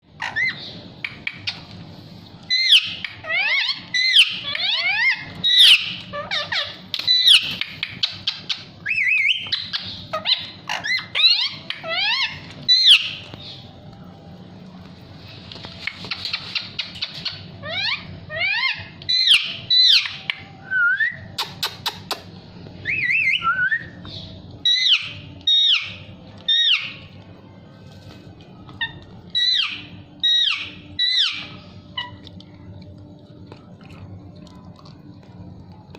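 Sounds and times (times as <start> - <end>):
parakeet chirping and squawking: 0.0 - 13.7, 15.8 - 20.8, 22.8 - 27.2, 28.7 - 32.2.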